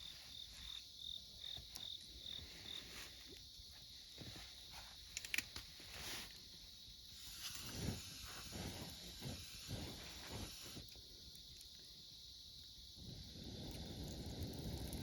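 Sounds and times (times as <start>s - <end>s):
insects trilling: 0.0s - 15.0s
flames rustling and hissing: 2.4s - 15.0s
campfire crackling and popping: 7.2s - 11.8s, 13.0s - 15.0s.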